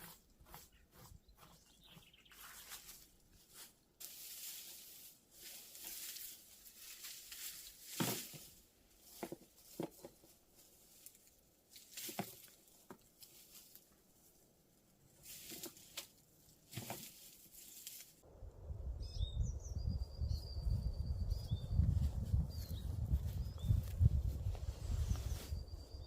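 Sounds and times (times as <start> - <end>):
rustling and scraping: 0.0 - 14.0, 15.2 - 18.2, 23.8 - 25.7.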